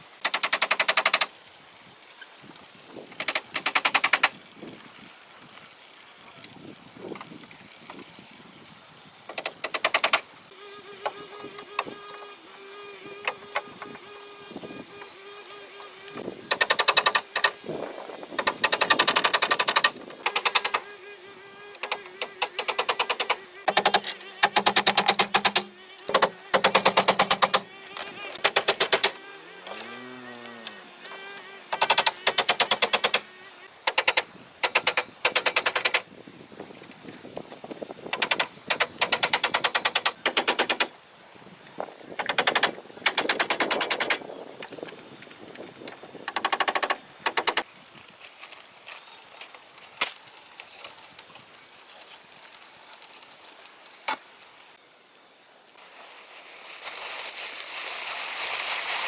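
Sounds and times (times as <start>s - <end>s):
power tool rapid clicking: 0.2s - 1.3s, 3.2s - 4.3s, 9.3s - 10.2s, 16.5s - 17.6s, 18.4s - 20.8s, 21.8s - 27.7s, 28.4s - 29.2s, 31.1s - 33.2s, 33.9s - 36.1s, 38.1s - 40.9s, 42.2s - 44.2s, 46.2s - 47.7s.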